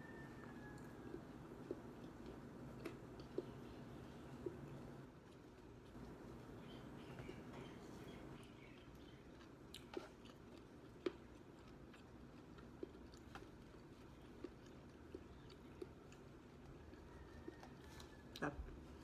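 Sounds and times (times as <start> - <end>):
faint room hum: 0.0 - 19.0
person chewing food: 0.0 - 19.0.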